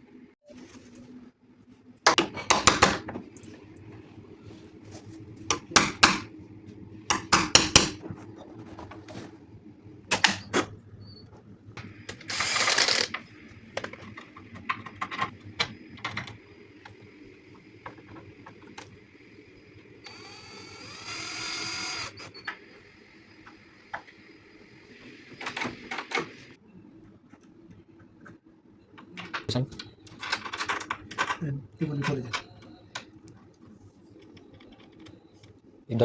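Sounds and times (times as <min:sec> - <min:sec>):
power drill running: 0:12.1 - 0:13.3, 0:20.0 - 0:22.5.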